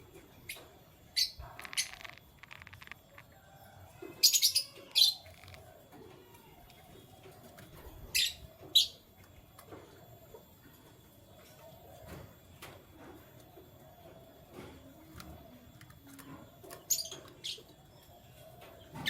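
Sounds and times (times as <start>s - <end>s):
canaries chirping: 0.3s - 9.4s, 15.2s - 19.0s
rattling ticks: 0.5s - 3.4s, 4.9s - 5.8s.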